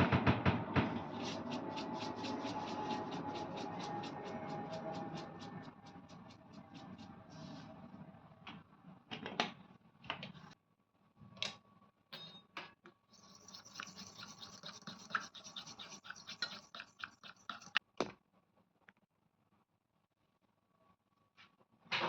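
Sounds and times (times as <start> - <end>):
scratchy brushing strokes: 0.8 - 7.9, 13.1 - 17.8.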